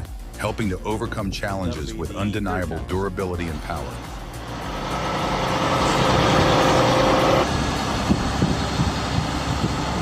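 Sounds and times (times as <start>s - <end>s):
heavy diesel engine running: 3.4s - 10.0s
engine whine: 3.6s - 10.0s.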